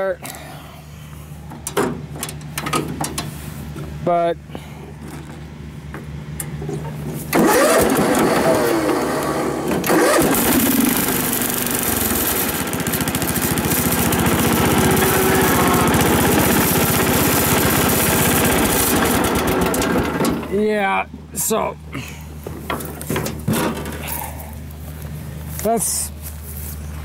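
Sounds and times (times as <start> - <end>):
small engine starting and running: 7.3 - 20.5.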